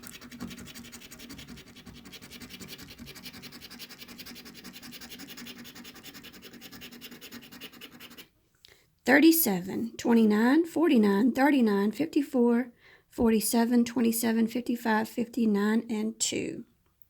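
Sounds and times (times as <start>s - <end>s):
coin scratching lottery ticket: 0.0s - 8.3s.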